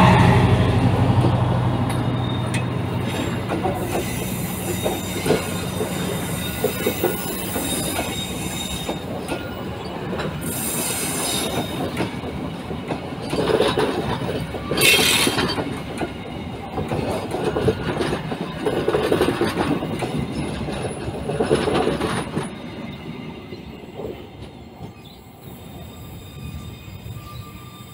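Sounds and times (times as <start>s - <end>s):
train clanking: 0.0s - 27.9s
train wheels rumbling on rails: 0.0s - 27.9s
wheel squeal: 2.1s - 12.0s, 14.6s - 15.6s, 24.8s - 27.9s.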